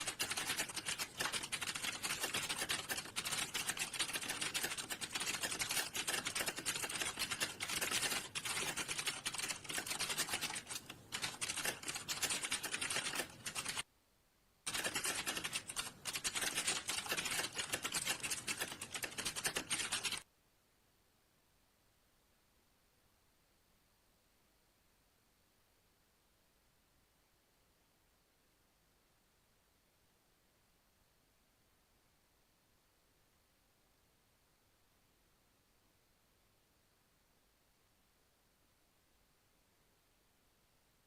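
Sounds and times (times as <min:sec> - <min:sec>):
fast typing on keyboard: 0:00.0 - 0:13.8, 0:14.7 - 0:20.3.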